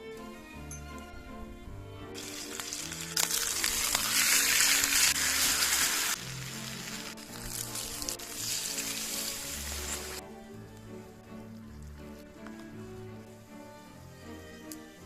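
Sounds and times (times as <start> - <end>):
background music: 0.0 - 15.0
chicken sizzling in pan: 2.2 - 10.2.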